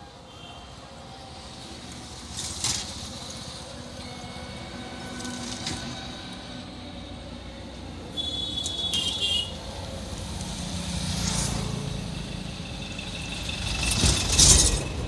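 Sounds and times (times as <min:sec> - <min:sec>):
road traffic rumble: 0:00.0 - 0:15.0
metallic clatters: 0:13.0 - 0:15.0.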